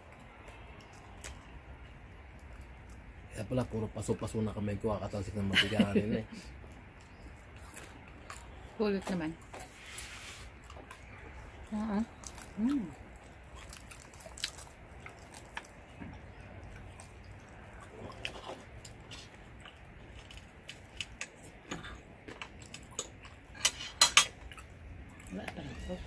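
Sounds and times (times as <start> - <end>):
chewing crispy food: 0.0 - 26.0.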